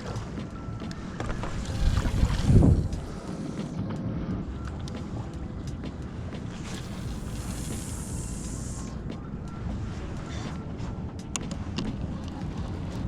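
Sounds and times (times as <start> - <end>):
steady low rumble: 0.0 - 13.0
wind buffeting microphone: 0.0 - 13.0
brief hiss: 7.2 - 9.0.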